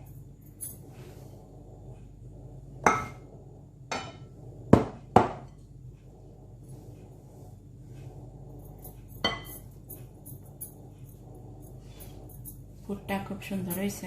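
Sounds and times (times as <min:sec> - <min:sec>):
utensil knocking on dish: 0:03.9 - 0:05.5.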